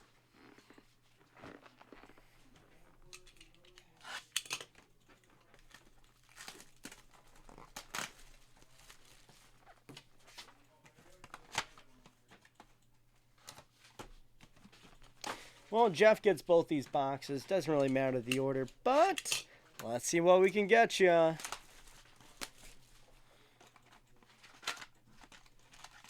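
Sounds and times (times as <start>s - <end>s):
packaging tearing and rustling: 24.2s - 26.0s.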